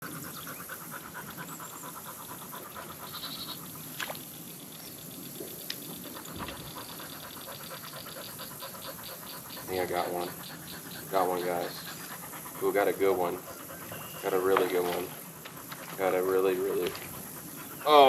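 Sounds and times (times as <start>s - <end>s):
steady high hiss: 0.1s - 18.0s
animal chorus pulsing: 5.5s - 18.0s.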